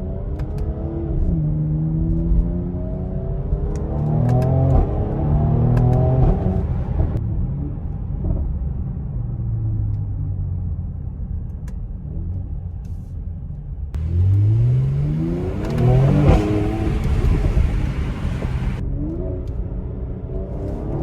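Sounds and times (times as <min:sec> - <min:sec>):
car engine accelerating: 0:00.0 - 0:08.5, 0:13.9 - 0:21.0
sharp exhaust crack: 0:14.0 - 0:18.8.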